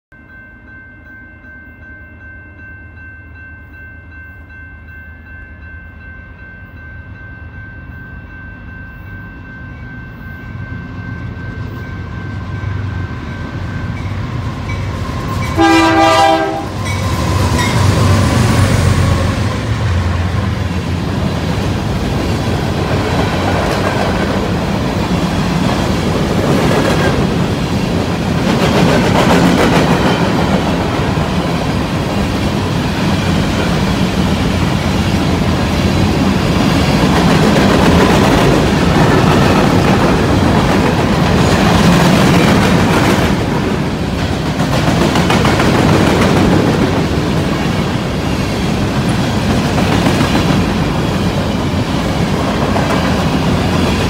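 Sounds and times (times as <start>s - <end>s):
diesel locomotives passing: 3.6s - 54.0s
train horn blast: 15.5s - 20.3s
wheels clattering on rails: 19.4s - 54.0s.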